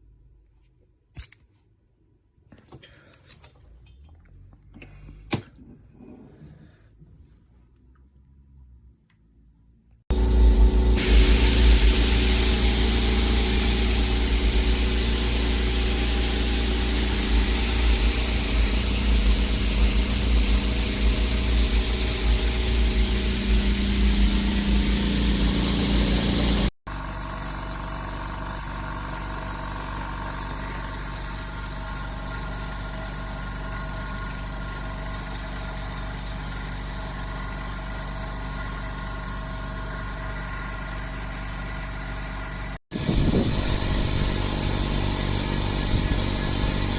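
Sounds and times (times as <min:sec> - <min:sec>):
air compressor running: 0:10.1 - 0:46.9.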